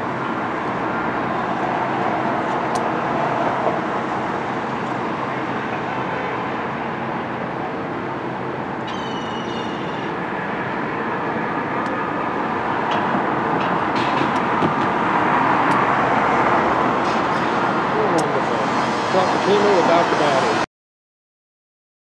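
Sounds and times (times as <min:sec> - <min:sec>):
passing traffic rumble: 0:00.0 - 0:20.7
high squeal: 0:08.9 - 0:10.2.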